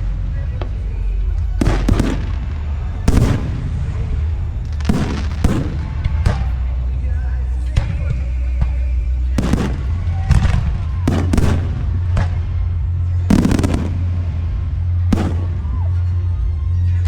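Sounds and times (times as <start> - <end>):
low rumble: 0.0 - 17.0
firework shells bursting: 9.4 - 12.6, 13.2 - 14.1.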